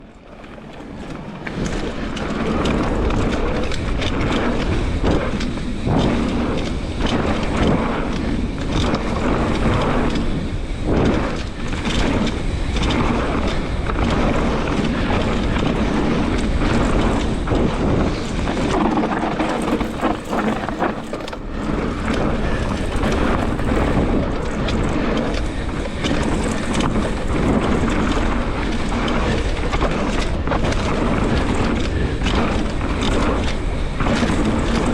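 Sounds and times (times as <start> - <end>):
bike tyres rolling on dirt: 0.0 - 34.9
wind buffeting microphone: 0.0 - 34.9
bike knocks and rattles: 0.4 - 34.9.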